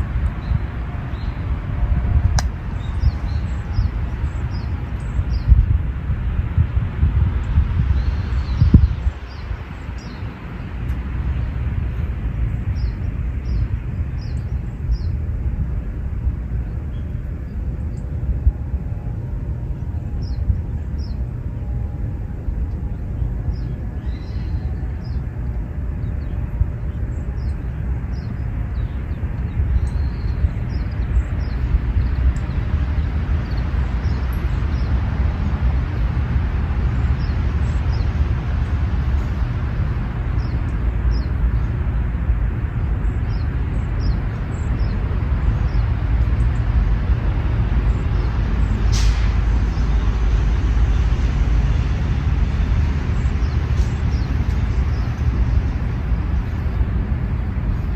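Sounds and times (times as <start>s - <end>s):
wind rumbling on microphone: 0.0s - 57.9s
small birds chirping: 2.4s - 5.7s, 7.4s - 10.6s, 12.0s - 15.2s, 22.8s - 46.7s, 53.1s - 56.8s.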